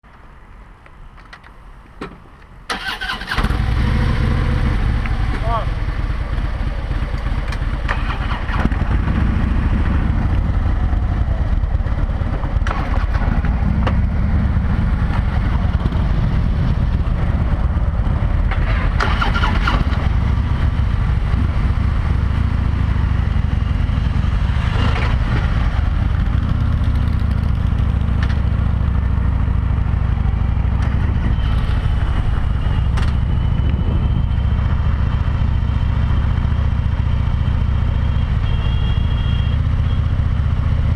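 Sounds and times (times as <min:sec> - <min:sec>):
motorcycle engine rumbling: 0:02.2 - 0:40.9
wind rushing over microphone: 0:08.6 - 0:27.9, 0:30.8 - 0:35.2.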